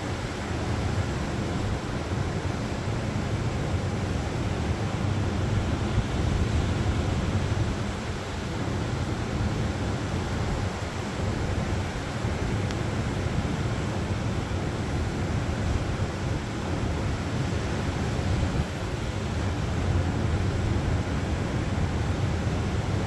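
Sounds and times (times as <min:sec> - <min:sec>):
wind rumbling on microphone: 0:09.4 - 0:23.0.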